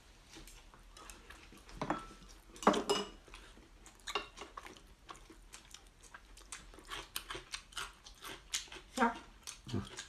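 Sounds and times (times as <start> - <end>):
person chewing: 0.4 - 10.0.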